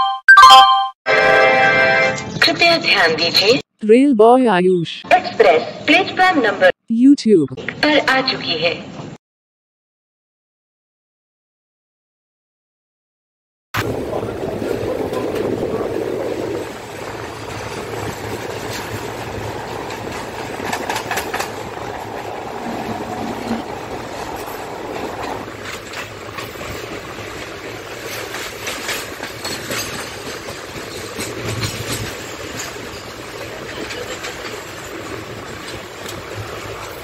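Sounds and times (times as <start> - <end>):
train wheels rumbling on track: 13.8 - 37.0
wheels clicking over rail joints: 14.6 - 37.0.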